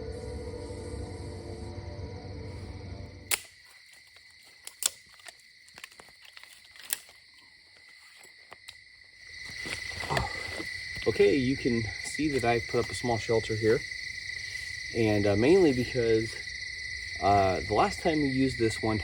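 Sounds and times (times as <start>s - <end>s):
crickets trilling: 0.0s - 19.0s
sharp clicks and snaps: 3.3s - 7.2s.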